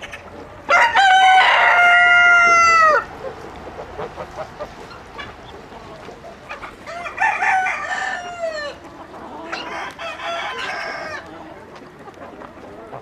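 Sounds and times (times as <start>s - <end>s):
chickens clucking: 0.0s - 13.0s
rooster crowing: 0.7s - 3.1s, 6.8s - 8.8s, 9.6s - 11.3s.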